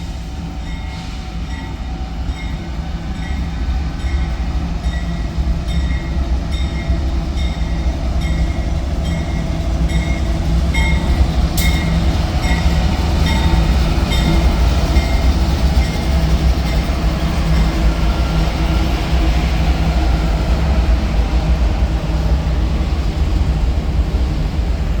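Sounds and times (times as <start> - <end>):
train rumbling past: 0.0 - 25.0.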